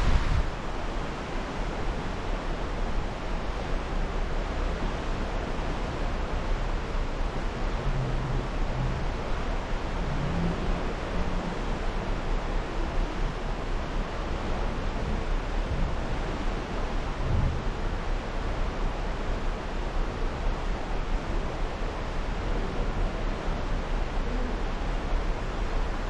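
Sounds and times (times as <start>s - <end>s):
wind rushing: 0.0s - 0.8s
water rushing: 0.0s - 26.0s.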